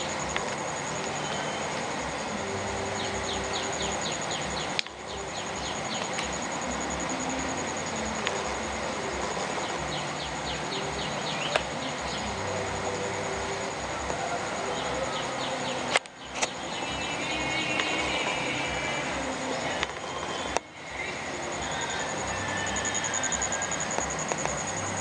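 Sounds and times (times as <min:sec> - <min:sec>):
high-pitched insect trill: 0:00.0 - 0:25.0
steady background hiss: 0:00.0 - 0:25.0.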